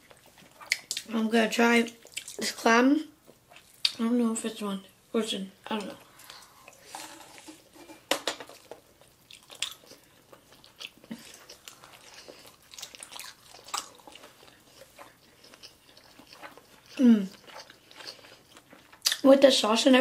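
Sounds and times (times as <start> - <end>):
chewing and wet mouth sounds: 0.0 - 2.6, 3.2 - 4.0, 8.5 - 19.5.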